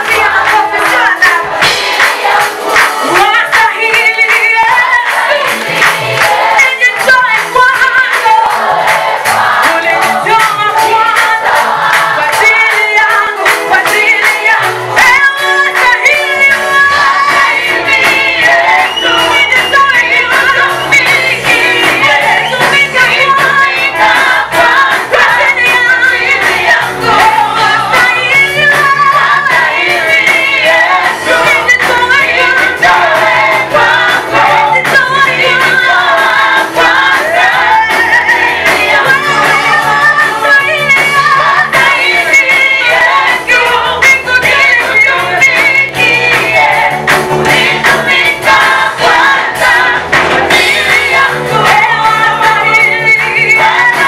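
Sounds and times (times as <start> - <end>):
steady beat: 0.0 - 7.6
group singing gospel song: 0.0 - 54.0
bass line: 14.6 - 54.0.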